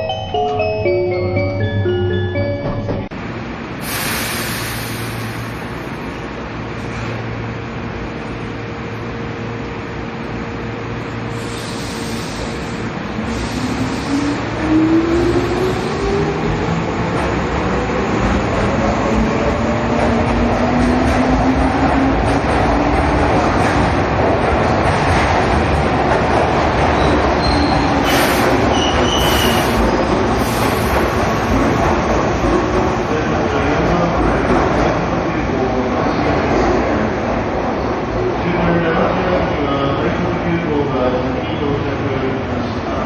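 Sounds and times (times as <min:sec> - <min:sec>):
wheels rumbling on rail: 0:00.0 - 0:40.4
short hisses: 0:03.8 - 0:05.6, 0:28.0 - 0:31.0
high squeal: 0:27.0 - 0:29.8.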